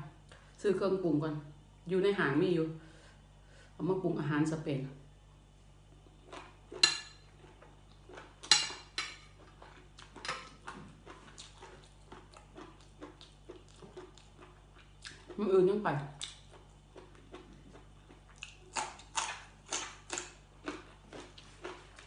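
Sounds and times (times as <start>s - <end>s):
crunchy chewing: 5.9s - 15.4s, 16.1s - 22.0s.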